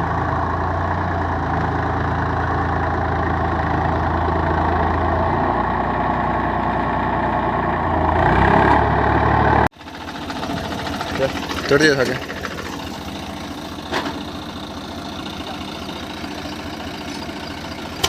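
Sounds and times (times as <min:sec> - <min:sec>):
quieter engine sound: 0:00.0 - 0:18.0
tractor diesel engine running: 0:00.0 - 0:18.0.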